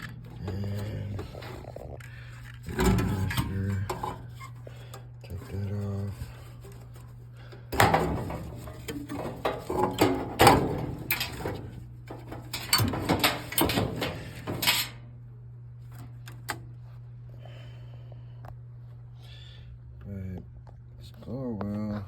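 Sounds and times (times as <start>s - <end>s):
metal and plastic parts clattering: 0.0s - 15.0s
steady low hum: 0.0s - 22.0s.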